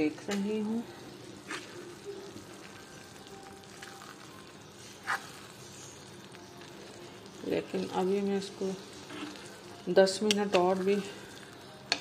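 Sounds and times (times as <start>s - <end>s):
meat sizzling in a pan: 0.0s - 12.0s
spoon stirring: 7.5s - 11.1s.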